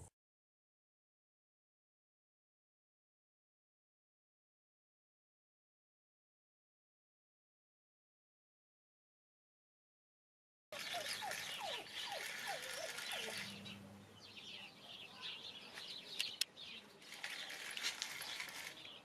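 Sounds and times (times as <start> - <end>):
animal chirps and squeaks: 10.8 - 13.8
sharp clicks: 16.1 - 16.5.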